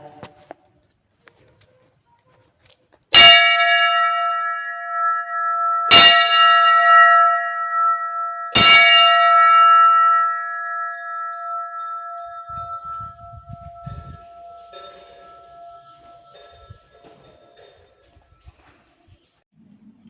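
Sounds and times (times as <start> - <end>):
metal temple bell ringing: 3.1 - 18.1.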